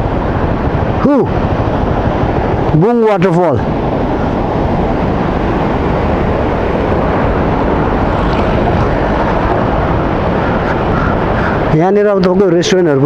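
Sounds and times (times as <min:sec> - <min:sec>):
waterfall roaring: 0:01.9 - 0:12.0.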